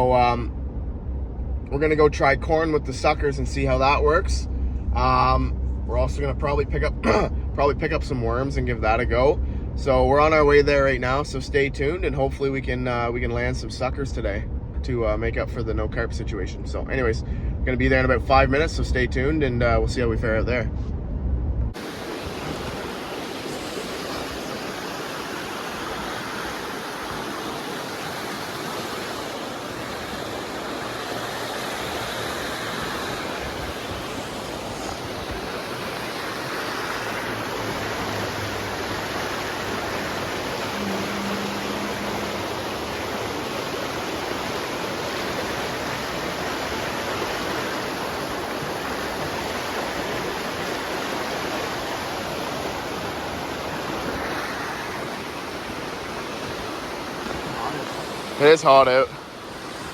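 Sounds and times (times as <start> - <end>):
river water rushing: 21.8 - 59.9.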